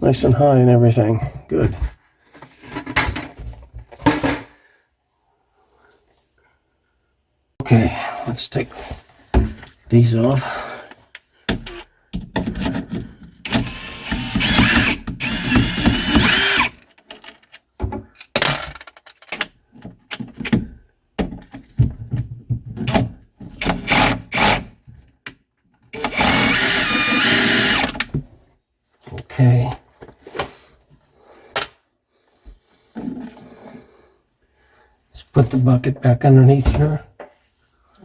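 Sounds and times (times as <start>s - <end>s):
clicks and knocks of handling parts: 10.9s - 20.6s
cordless drill motor whine: 11.6s - 11.9s, 13.5s - 16.7s, 23.6s - 24.6s, 26.0s - 28.0s.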